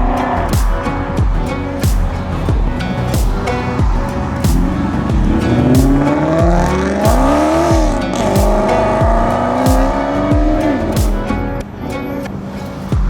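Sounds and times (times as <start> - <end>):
sports car engine accelerating: 0.0 - 11.8
music with heavy beat: 0.0 - 12.0, 12.7 - 13.0.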